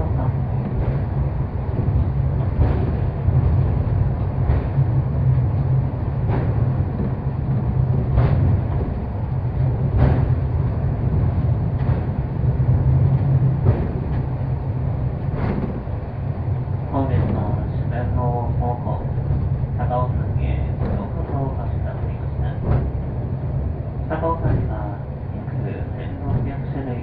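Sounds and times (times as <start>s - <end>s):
cable car rumbling: 0.0s - 27.0s
short knocks: 6.2s - 9.1s, 15.2s - 16.0s, 22.5s - 23.1s.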